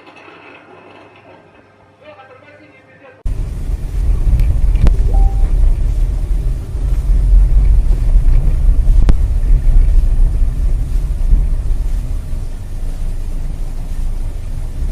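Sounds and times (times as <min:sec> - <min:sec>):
car road and engine rumble: 0:03.3 - 0:14.9.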